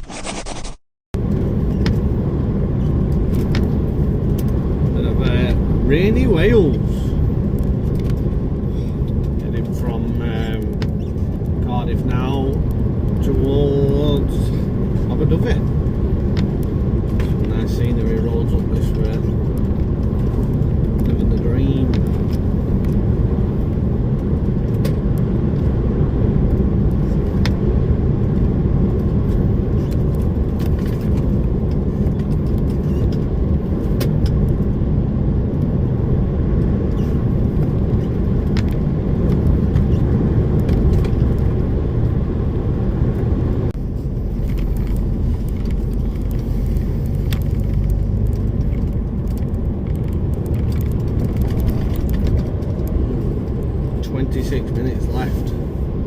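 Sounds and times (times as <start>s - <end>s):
lorry engine and road rumble: 1.2s - 56.0s
small clicks and rattles: 44.2s - 54.6s.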